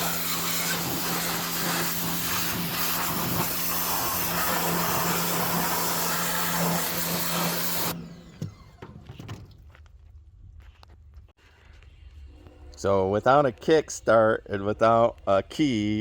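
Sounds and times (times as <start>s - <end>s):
pressure washer spraying: 0.0s - 8.0s.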